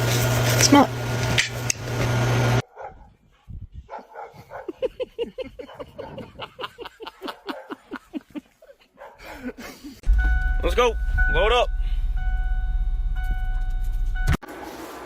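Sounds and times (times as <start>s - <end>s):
dog barking yappy barks: 2.6s - 4.8s, 5.6s - 6.2s, 7.2s - 7.8s, 9.0s - 9.4s
loud steady hum: 10.1s - 14.4s.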